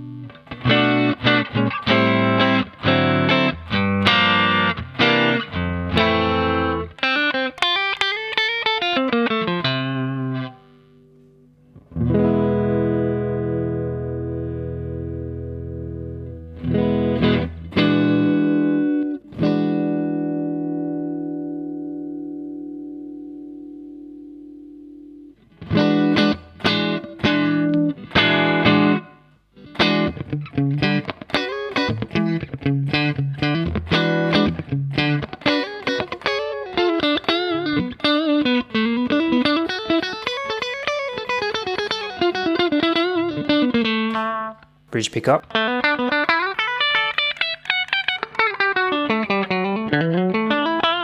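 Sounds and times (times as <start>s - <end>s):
electric guitar chords: 0.0s - 51.0s.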